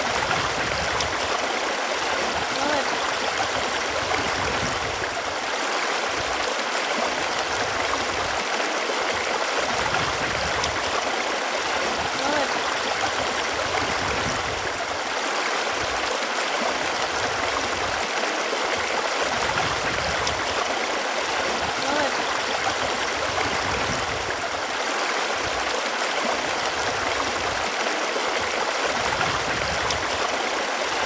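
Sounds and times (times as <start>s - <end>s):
running water flowing: 0.0s - 31.0s.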